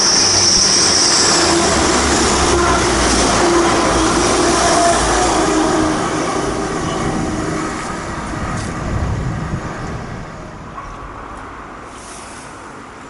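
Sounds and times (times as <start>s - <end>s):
train engine and wheels passing: 0.0s - 13.0s.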